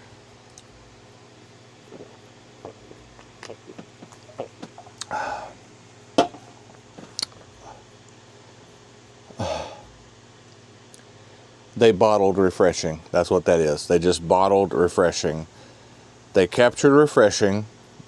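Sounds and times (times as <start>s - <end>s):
can clicks and knocks: 6.2s - 6.4s.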